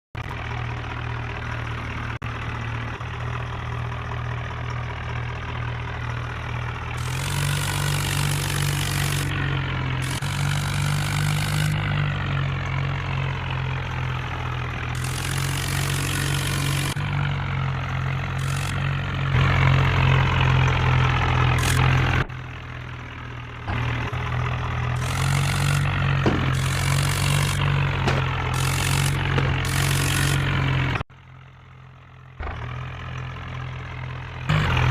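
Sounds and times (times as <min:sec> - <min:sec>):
tractor engine running: 0:00.2 - 0:34.9.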